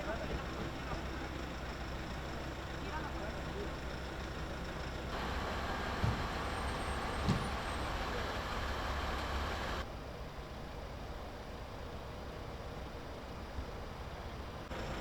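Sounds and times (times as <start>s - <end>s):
road vehicle noise: 0.0s - 9.9s, 13.7s - 15.0s.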